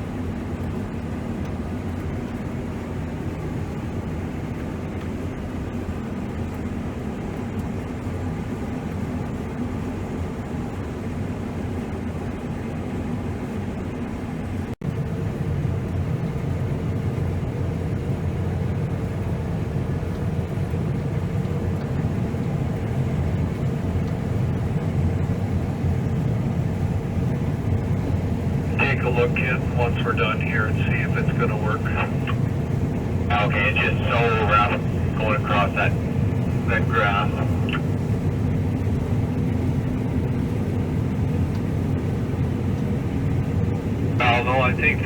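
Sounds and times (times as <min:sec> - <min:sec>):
diesel engine running: 0:21.4 - 0:42.4, 0:43.3 - 0:45.0.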